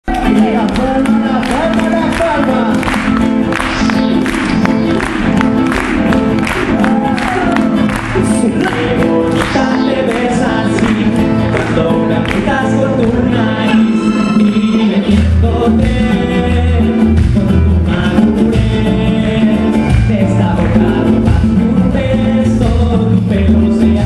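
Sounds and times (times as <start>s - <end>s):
person singing: 0.0s - 24.0s
live band playing: 0.1s - 24.0s.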